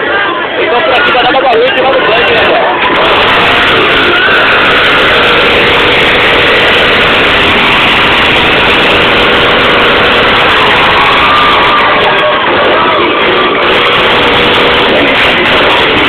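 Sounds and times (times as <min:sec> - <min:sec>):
motorcycle engine running: 0:02.8 - 0:16.0.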